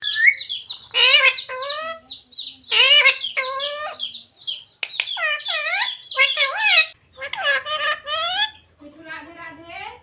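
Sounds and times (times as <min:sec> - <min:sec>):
parrot speech-like calls: 0:00.9 - 0:04.2, 0:05.2 - 0:08.6.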